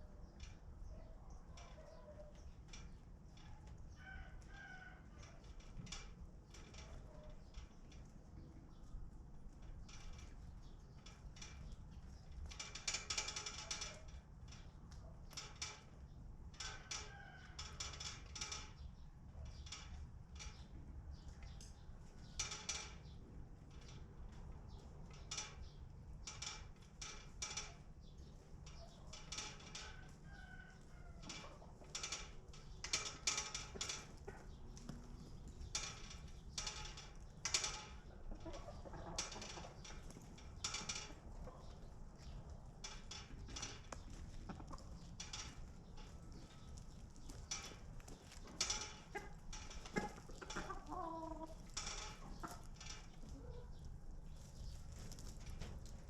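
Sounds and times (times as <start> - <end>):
rooster crowing: 4.0 - 5.2
chickens clucking: 37.9 - 40.3, 44.0 - 45.6, 47.3 - 55.4.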